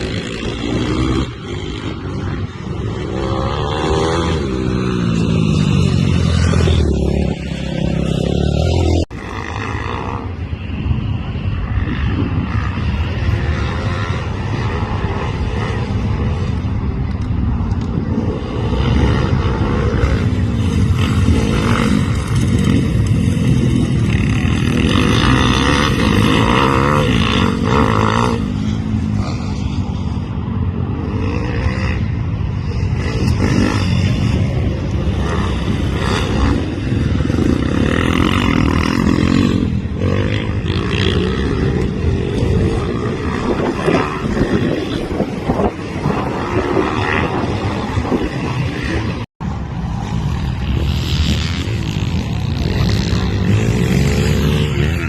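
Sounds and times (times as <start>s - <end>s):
pit bike engine revving: 0.0s - 10.4s, 18.0s - 49.3s, 50.4s - 55.0s.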